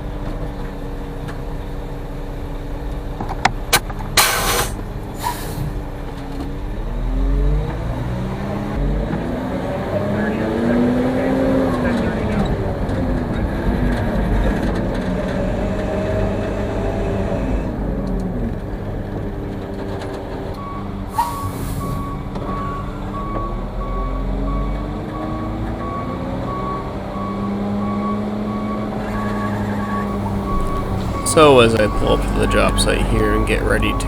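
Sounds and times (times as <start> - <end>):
air brakes hissing: 30.1 - 33.6
backup alarm beeping: 30.1 - 34.0
diesel truck engine running: 30.1 - 34.0.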